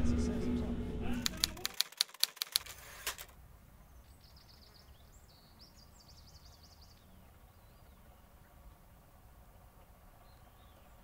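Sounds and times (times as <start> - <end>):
low background rumble: 0.0 - 1.6
faint bird chirping: 3.6 - 9.4, 10.0 - 11.0.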